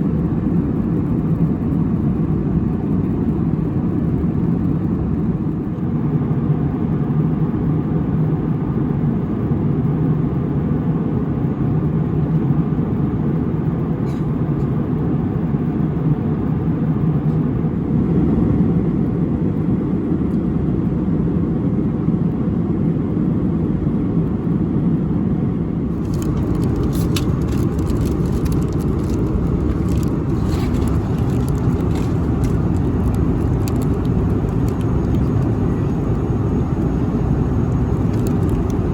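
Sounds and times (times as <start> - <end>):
airplane cabin roar: 0.0 - 38.9
small clicks and rustles: 25.9 - 36.2, 37.6 - 38.9.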